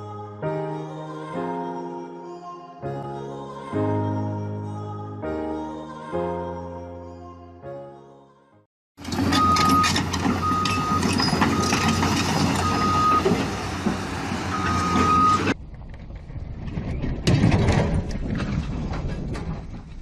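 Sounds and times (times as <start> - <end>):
loud engine and machinery noise: 9.0 - 16.6
reversing alarm beeping: 9.1 - 13.4, 14.5 - 15.6.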